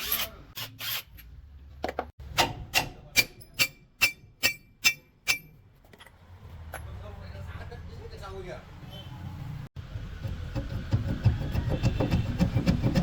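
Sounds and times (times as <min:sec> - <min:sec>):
hammer striking metal: 0:02.3 - 0:05.6.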